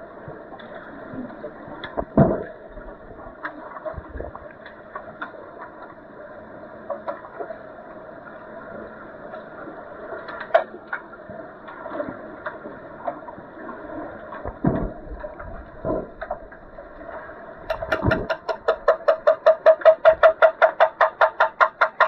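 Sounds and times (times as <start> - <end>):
pool water noise: 0.0 - 22.0
knocks: 17.7 - 18.7.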